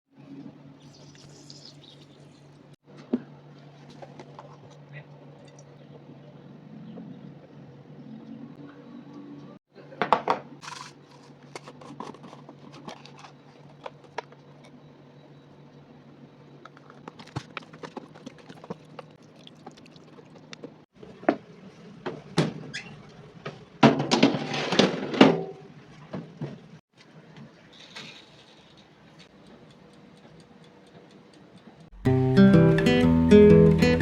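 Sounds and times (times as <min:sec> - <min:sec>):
clattering and rustling: 0:10.6 - 0:14.4, 0:22.0 - 0:26.8.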